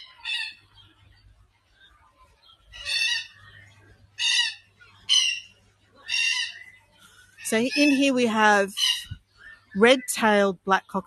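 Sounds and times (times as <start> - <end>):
cockatoos calling: 0.0 - 1.0, 2.4 - 10.2.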